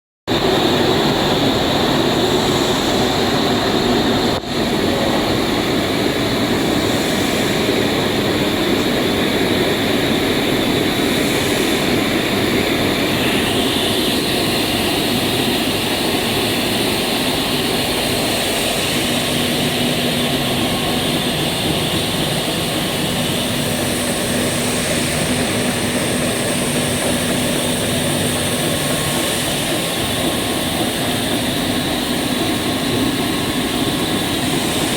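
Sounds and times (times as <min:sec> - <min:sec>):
loud steady machine noise: 0:00.3 - 0:34.9.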